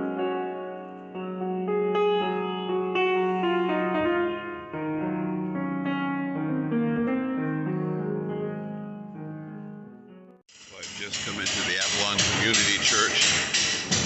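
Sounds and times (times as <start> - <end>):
slow piano-like keyboard chords: 0.0 - 10.5.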